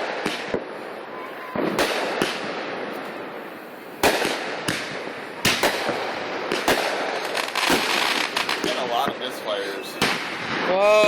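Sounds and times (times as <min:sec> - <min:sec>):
fireworks bangs: 0:00.0 - 0:11.0
fireworks pops: 0:04.0 - 0:10.5.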